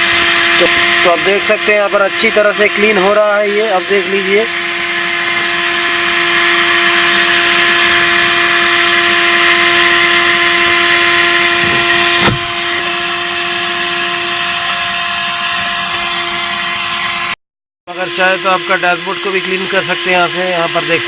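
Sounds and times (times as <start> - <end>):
handheld vacuum cleaner running: 0.0 - 21.0.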